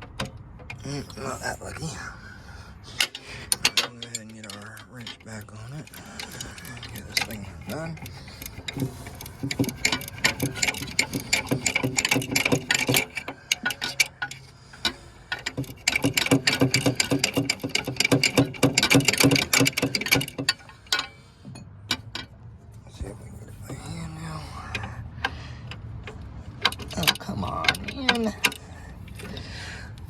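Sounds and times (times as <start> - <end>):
ratchet wrench clicking: 3.0 - 22.3.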